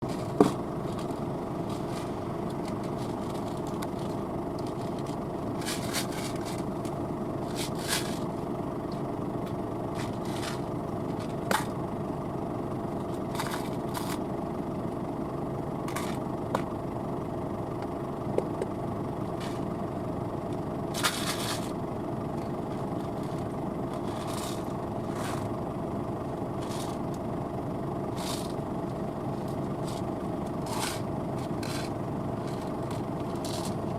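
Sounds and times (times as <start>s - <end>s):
crackles and scrapes: 0.0s - 11.8s, 13.0s - 14.3s, 15.9s - 16.7s, 19.3s - 19.7s, 20.9s - 25.6s, 26.5s - 27.2s, 28.1s - 33.9s
combine harvester running: 0.0s - 33.9s.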